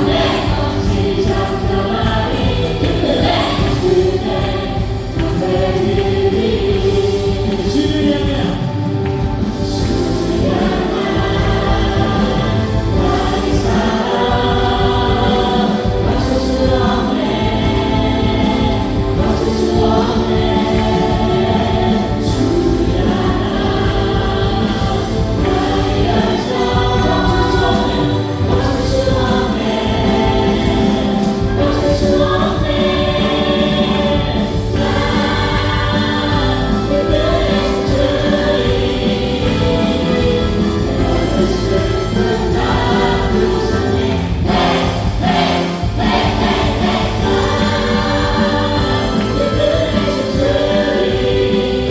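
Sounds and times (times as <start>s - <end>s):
congregation singing together: 0.0s - 51.9s
praise band playing: 0.0s - 51.9s.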